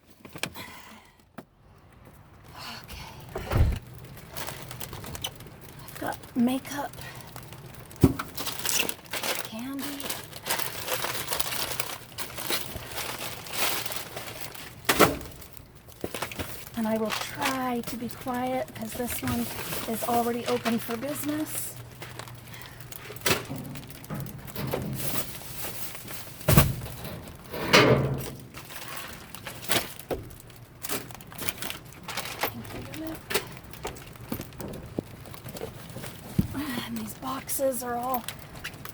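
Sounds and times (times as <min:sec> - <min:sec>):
plastic bags rustling: 0:03.3 - 0:27.6, 0:28.2 - 0:38.9
thud in metal dumpster: 0:03.4 - 0:03.8.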